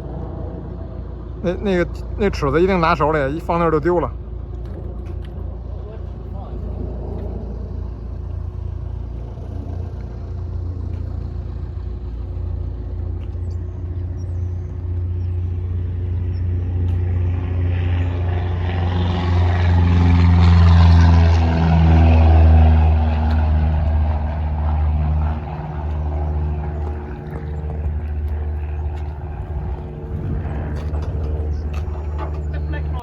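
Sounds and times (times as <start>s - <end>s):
engine droning: 0.0s - 33.0s.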